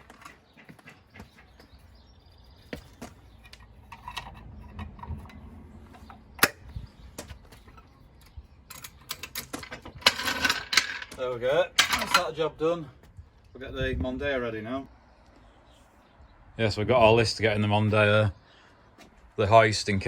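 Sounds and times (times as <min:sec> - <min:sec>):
clicks and metal knocks: 0:02.7 - 0:12.4.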